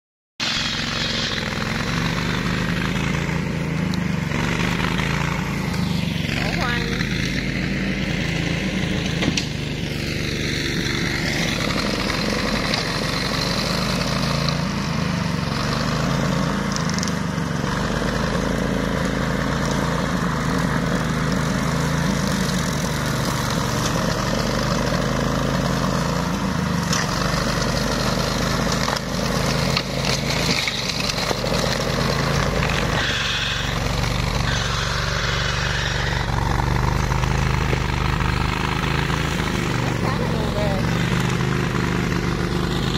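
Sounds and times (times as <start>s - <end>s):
mower engine running: 0.4s - 42.9s.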